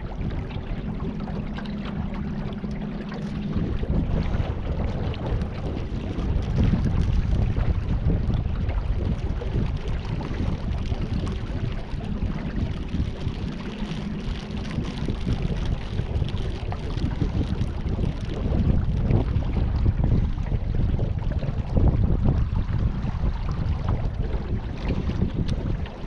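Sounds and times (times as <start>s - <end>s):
water noise: 0.0s - 26.0s
wind buffeting microphone: 0.0s - 26.0s.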